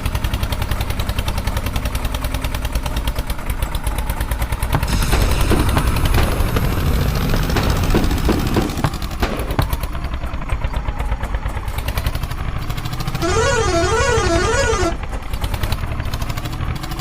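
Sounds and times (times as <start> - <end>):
tractor engine rattling: 0.0 - 17.0
warbling horn: 13.2 - 15.0.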